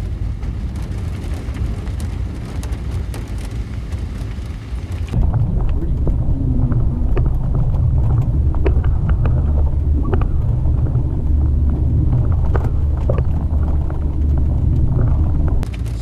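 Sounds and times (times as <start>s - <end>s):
vehicle engine rumble: 0.0s - 16.0s
knocks and rattles: 5.1s - 16.0s.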